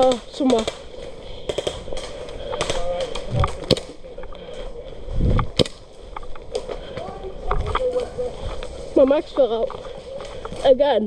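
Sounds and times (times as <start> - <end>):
airsoft gun shots: 0.0 - 4.0
low thumps: 0.0 - 10.7.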